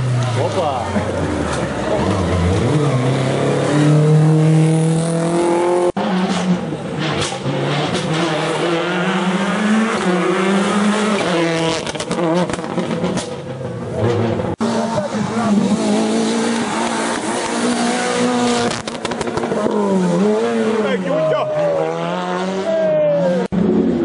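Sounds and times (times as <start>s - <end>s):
rally car engines accelerating: 0.0s - 24.0s.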